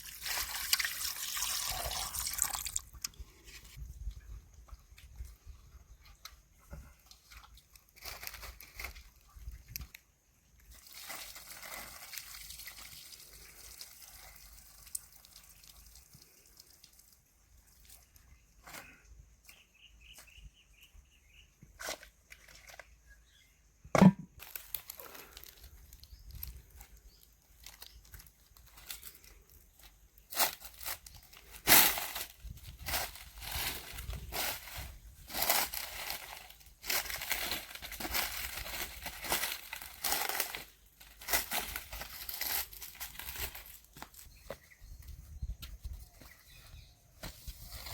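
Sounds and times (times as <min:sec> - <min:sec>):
rustling and crinkling: 0:03.2 - 0:15.1, 0:21.7 - 0:23.3, 0:24.3 - 0:47.9
knocks while handling food: 0:24.0 - 0:24.3.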